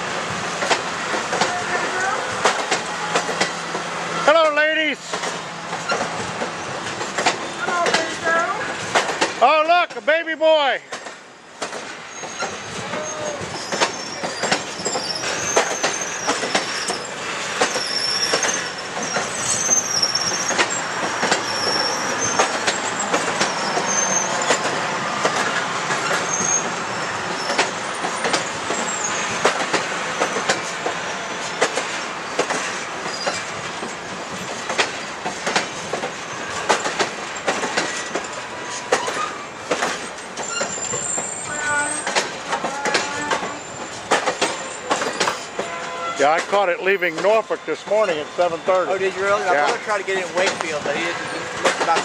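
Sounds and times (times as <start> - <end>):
train rumble: 0.0 - 52.0
wheels clicking over rail joints: 0.2 - 10.2, 10.8 - 52.0
wheel squeal: 12.1 - 24.7, 25.3 - 29.5, 33.0 - 33.5, 36.2 - 46.4.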